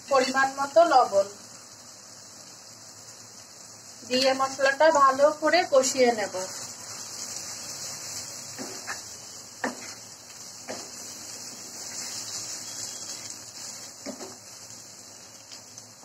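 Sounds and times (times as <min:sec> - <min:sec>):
paste sizzling in hot oil: 0:00.0 - 0:16.0
spatula scraping pan: 0:06.5 - 0:10.1, 0:10.7 - 0:14.4
spatula knocking on pan: 0:09.6 - 0:10.0.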